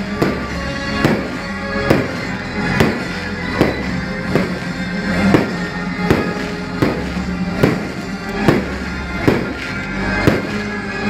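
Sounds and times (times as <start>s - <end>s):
fireworks bursting and crackling: 0.0s - 11.0s
loud music with steady beat: 0.0s - 11.0s.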